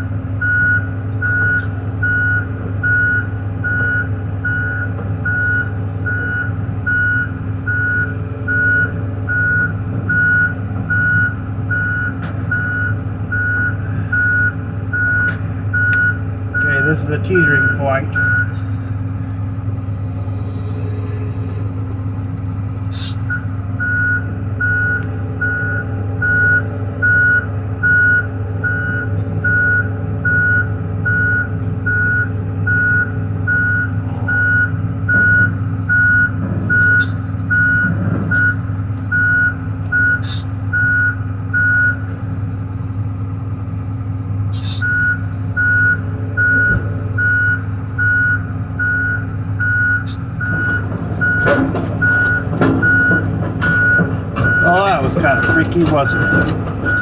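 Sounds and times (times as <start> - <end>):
diesel engine running: 0.0 - 57.0
travel alarm beeping: 0.4 - 18.6, 23.0 - 42.0, 44.5 - 57.0.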